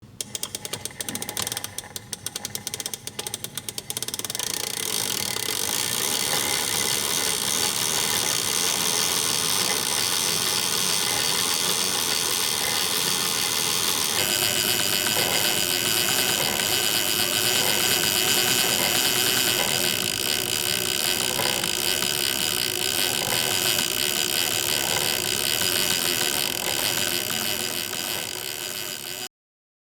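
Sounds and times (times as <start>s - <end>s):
fishing reel drag clicking and buzzing: 0.2s - 29.3s.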